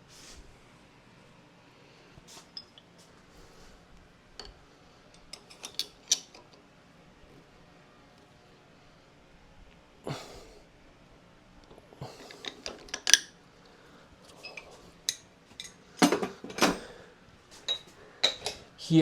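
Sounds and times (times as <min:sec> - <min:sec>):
steel clinking on steel: 0:04.4 - 0:06.4, 0:14.4 - 0:15.8, 0:17.6 - 0:18.6.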